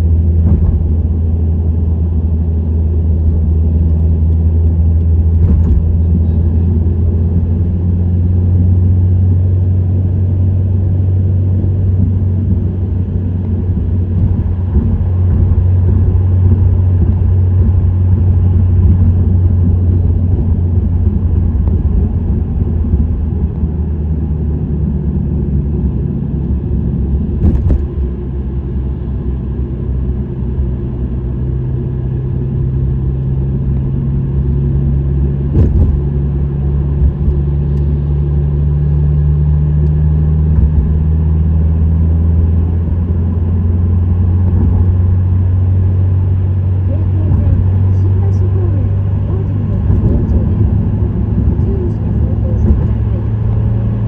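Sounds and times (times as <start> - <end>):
car engine droning while cruising: 0.0 - 54.0
short knocks: 0.4 - 1.0.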